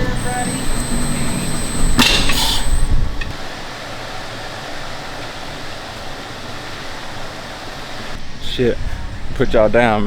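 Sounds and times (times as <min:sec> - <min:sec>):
sharp click: 0:00.0 - 0:03.3
steady fan hiss: 0:00.0 - 0:10.0.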